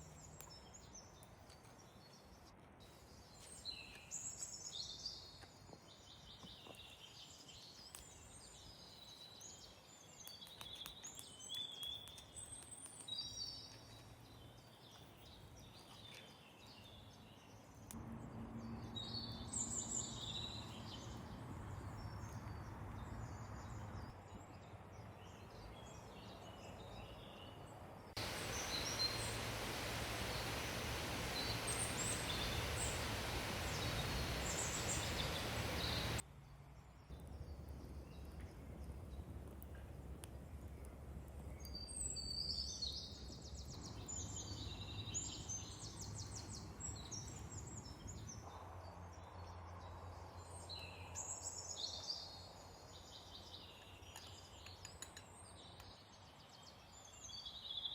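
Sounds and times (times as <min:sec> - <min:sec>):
even hiss: 0:28.1 - 0:36.2
birds chirping: 0:28.2 - 0:36.2.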